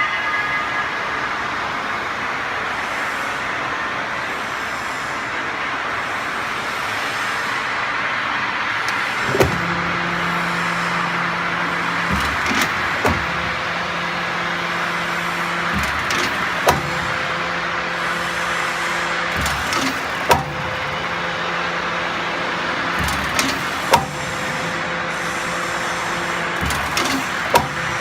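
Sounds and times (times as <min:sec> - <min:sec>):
sharp clicks: 0:15.6 - 0:17.6.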